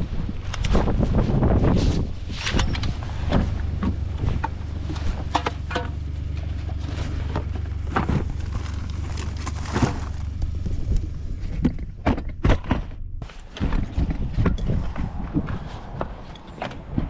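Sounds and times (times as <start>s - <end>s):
knocks and clunks of gear: 2.4s - 17.0s.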